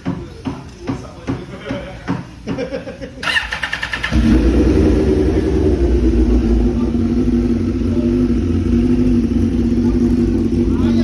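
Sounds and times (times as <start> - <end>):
motorcycle engine idling: 3.2 - 11.0.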